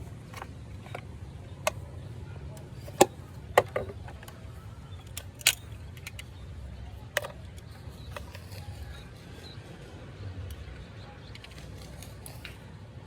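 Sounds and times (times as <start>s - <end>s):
sharp clicks and knocks: 2.5s - 6.4s.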